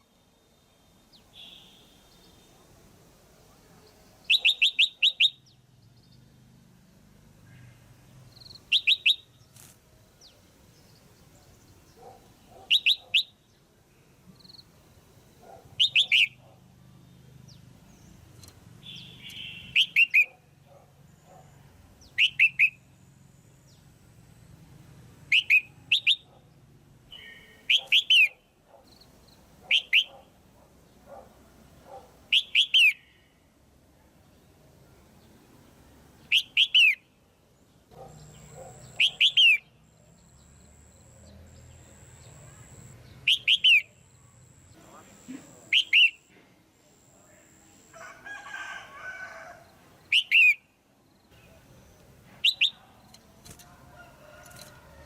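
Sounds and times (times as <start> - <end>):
bird chirping in bursts: 0.9 - 2.5, 3.9 - 6.3, 8.0 - 13.6, 14.4 - 16.4, 17.1 - 20.3, 22.0 - 23.9, 25.3 - 26.4, 27.1 - 30.2, 32.3 - 33.4, 36.2 - 37.2, 38.0 - 46.3, 50.0 - 53.2.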